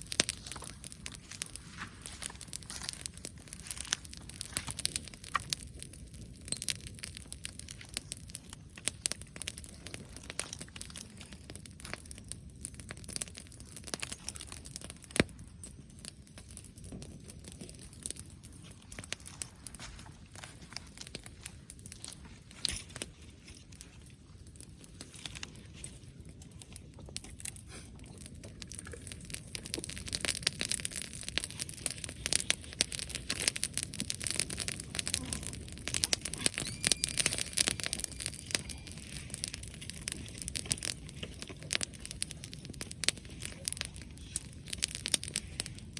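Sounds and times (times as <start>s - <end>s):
dry vegetation crackling: 0.0s - 6.0s, 17.4s - 26.0s, 28.6s - 45.9s.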